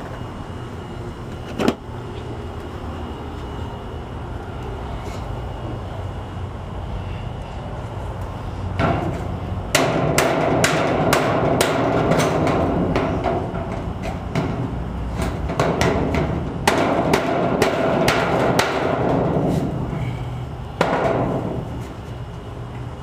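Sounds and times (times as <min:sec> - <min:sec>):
hammer striking sheet metal: 0:08.8 - 0:14.6, 0:15.2 - 0:19.6.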